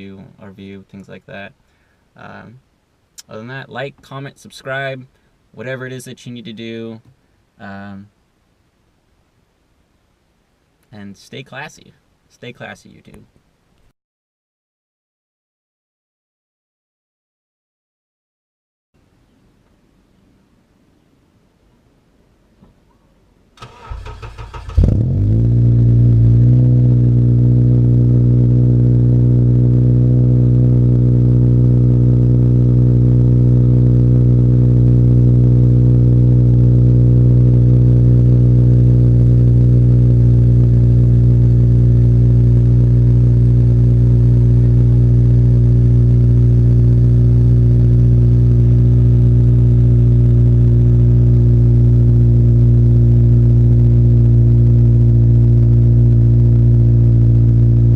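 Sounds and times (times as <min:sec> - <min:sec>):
car engine idling: 0:23.6 - 0:57.9.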